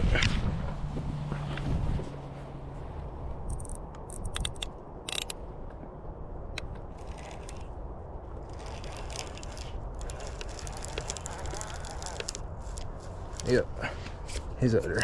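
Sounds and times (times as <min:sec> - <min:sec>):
fishing reel clicking: 0:03.5 - 0:05.4, 0:06.9 - 0:07.7, 0:08.4 - 0:12.8.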